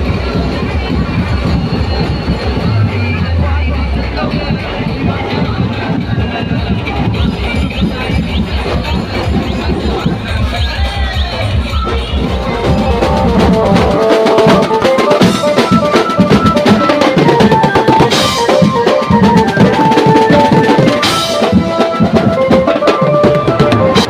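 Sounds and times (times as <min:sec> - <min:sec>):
fast dense drumming: 0:04.0 - 0:24.0
melody line: 0:12.0 - 0:24.0.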